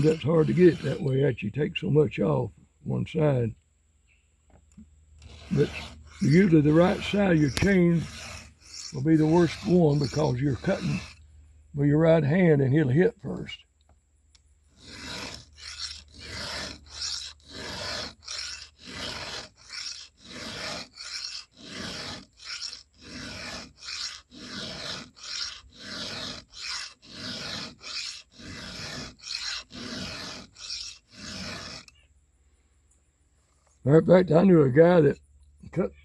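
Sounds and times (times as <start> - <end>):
file rasping on chainsaw chain: 0.0 - 1.4, 5.2 - 13.6, 14.7 - 32.0.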